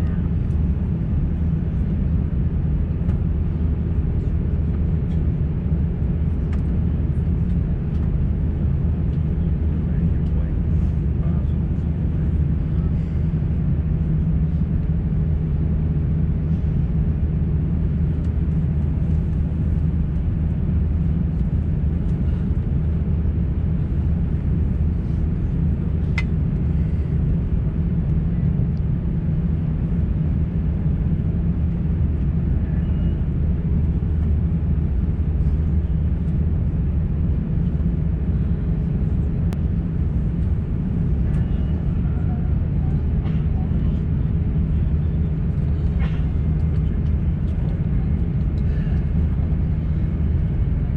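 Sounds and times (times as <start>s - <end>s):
airplane cabin hum: 0.0s - 50.9s.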